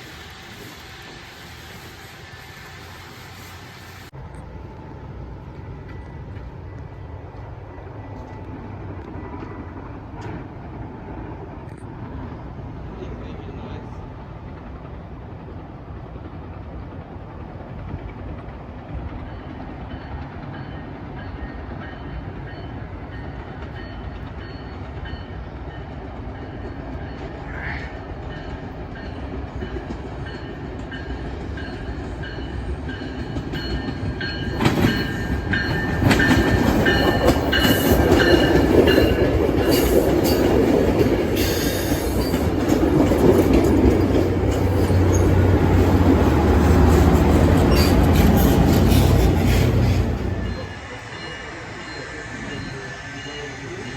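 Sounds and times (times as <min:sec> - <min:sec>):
train rumbling past: 0:00.0 - 0:53.9
wheels clattering over rail joints: 0:28.2 - 0:51.0.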